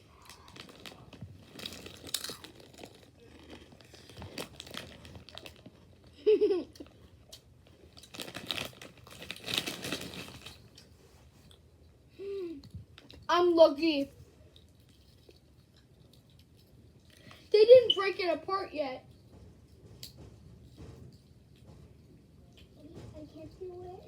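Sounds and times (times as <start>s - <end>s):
snack bag crinkling: 0.0s - 6.1s, 6.8s - 10.9s.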